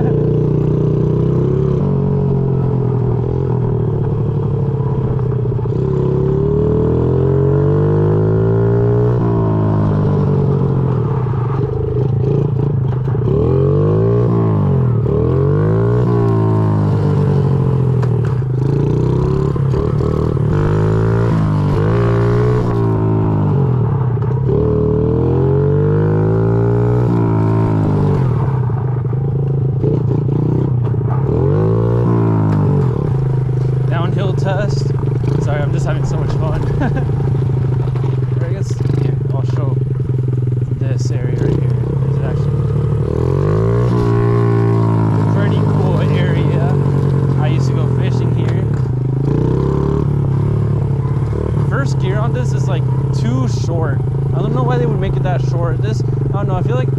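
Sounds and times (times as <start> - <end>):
small motorbike engine revving: 29.7 - 56.9.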